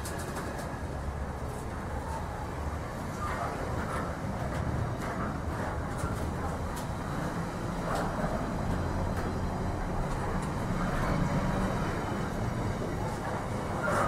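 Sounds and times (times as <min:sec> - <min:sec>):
locomotive rumbling: 0:00.0 - 0:14.0.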